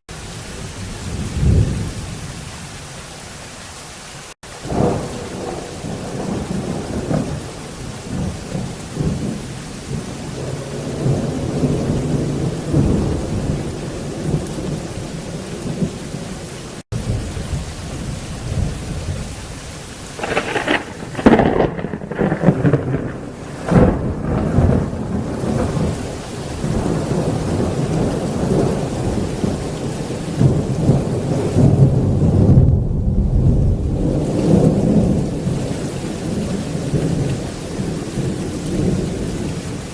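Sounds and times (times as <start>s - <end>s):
heavy rain: 0.1s - 39.9s
rolling thunder: 0.9s - 2.0s, 4.5s - 19.5s, 20.1s - 39.9s
sharp thunderclap: 4.6s - 14.9s, 20.2s - 29.6s.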